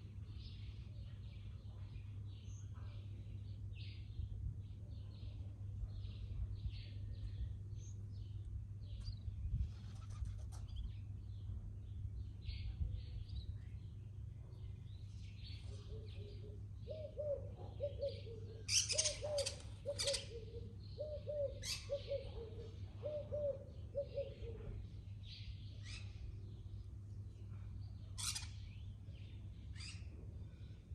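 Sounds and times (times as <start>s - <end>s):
low background hum: 0.0s - 30.9s
birds chirping: 10.6s - 24.4s
bird cooing: 15.8s - 24.9s.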